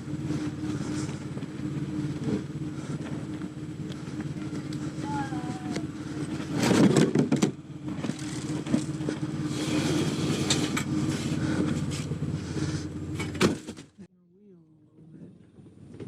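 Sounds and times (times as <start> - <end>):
minivan engine running: 0.0 - 16.0
loud clunks and rattles: 6.1 - 12.2, 13.1 - 14.0.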